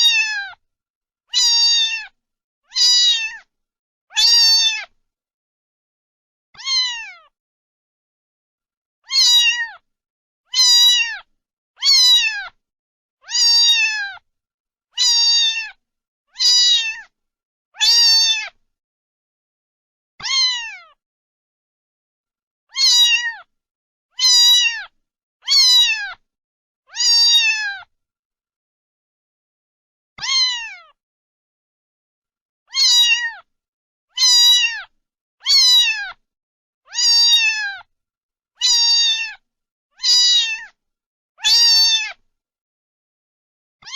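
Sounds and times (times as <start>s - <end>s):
cat meowing: 0.0s - 0.6s, 1.3s - 3.5s, 4.1s - 5.0s, 6.6s - 7.4s, 9.0s - 9.8s, 10.5s - 12.6s, 13.2s - 14.2s, 15.0s - 15.8s, 16.4s - 17.1s, 17.8s - 18.6s, 20.2s - 21.0s, 22.7s - 23.5s, 24.2s - 26.2s, 26.9s - 27.9s, 30.2s - 31.0s, 32.7s - 33.5s, 34.1s - 36.2s, 36.9s - 37.9s, 38.6s - 39.4s, 40.0s - 40.8s, 41.4s - 42.2s.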